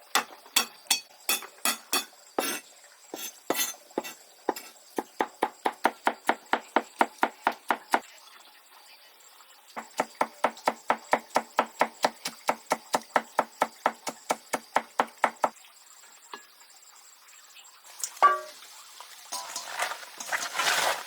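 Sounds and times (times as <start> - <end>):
rapid chopping strokes: 9.8 - 15.5.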